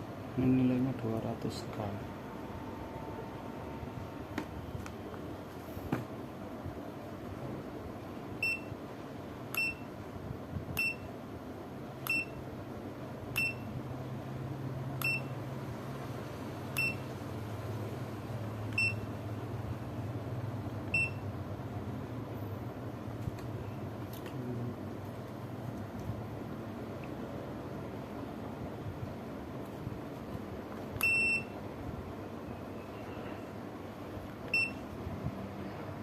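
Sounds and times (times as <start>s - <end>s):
multimeter short high beeps: 8.4s - 8.8s, 9.6s - 9.9s, 10.8s - 11.1s, 12.0s - 12.4s, 13.4s - 13.7s, 15.0s - 15.4s, 16.8s - 17.0s, 18.8s - 19.1s, 20.9s - 21.3s, 31.0s - 31.6s, 34.5s - 34.8s.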